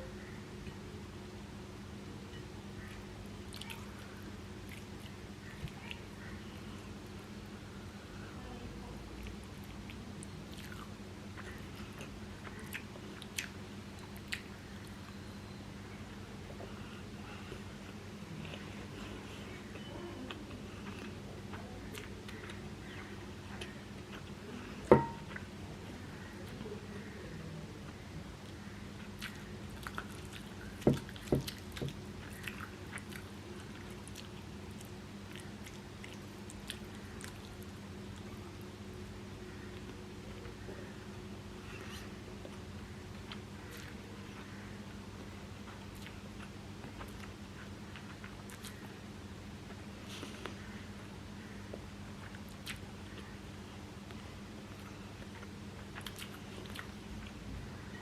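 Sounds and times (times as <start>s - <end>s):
steady low hum: 0.0s - 58.0s
person chewing food: 9.2s - 15.0s, 17.4s - 25.5s, 28.4s - 38.3s, 41.6s - 49.0s, 51.7s - 53.4s, 54.1s - 57.5s.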